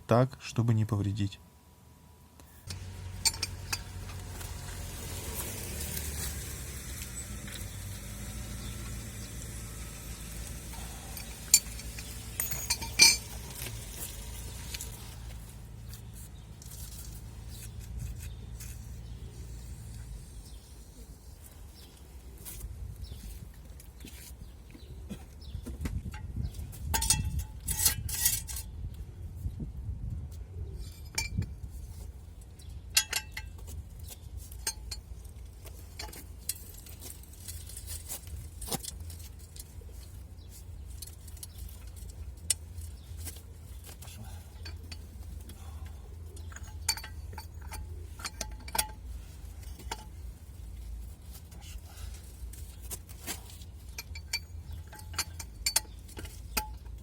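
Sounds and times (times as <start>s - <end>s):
metal tools clinking: 2.7s - 7.8s, 8.5s - 18.8s, 26.9s - 28.7s, 32.9s - 33.8s, 40.8s - 57.0s.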